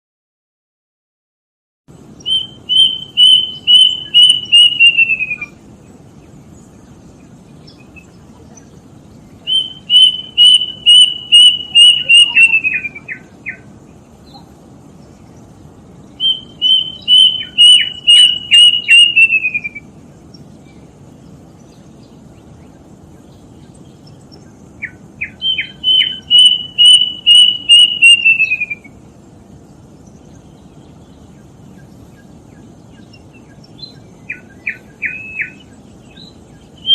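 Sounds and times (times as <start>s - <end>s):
low background noise: 1.9s - 36.9s
cuckoo singing: 2.2s - 5.6s, 9.4s - 14.6s, 16.2s - 19.9s, 24.8s - 29.0s, 33.9s - 36.9s.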